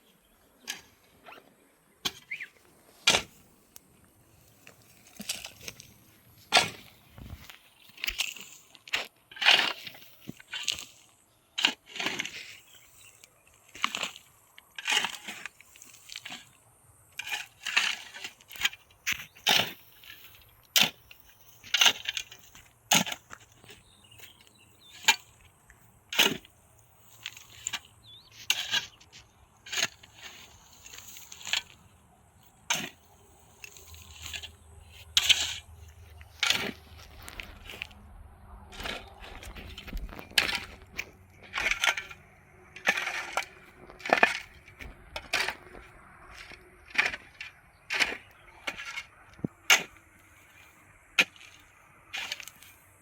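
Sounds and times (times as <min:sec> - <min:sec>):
crunching rasp: 0:26.1 - 0:38.0, 0:38.7 - 0:42.2, 0:42.8 - 0:50.6.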